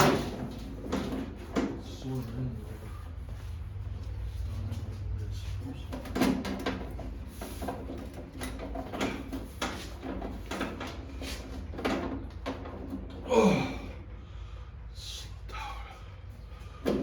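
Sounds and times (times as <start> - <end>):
hard parts clicking and rattling: 0.0 - 2.6, 3.8 - 14.1.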